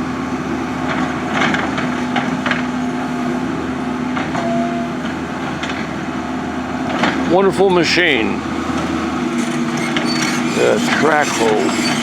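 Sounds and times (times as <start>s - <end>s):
excavator engine running: 0.0s - 12.0s
thin squeal: 9.4s - 12.0s.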